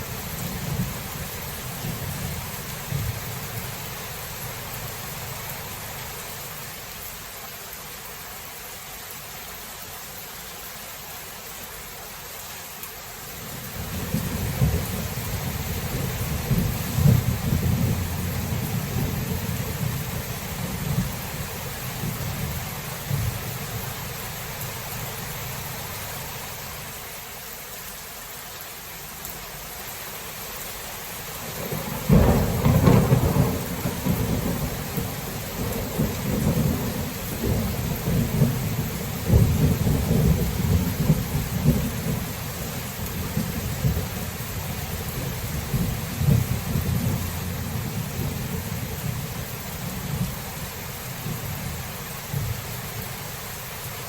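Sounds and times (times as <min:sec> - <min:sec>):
steady rain: 0:00.0 - 0:54.0
rolling thunder: 0:13.8 - 0:23.5, 0:31.6 - 0:42.4, 0:45.0 - 0:49.4.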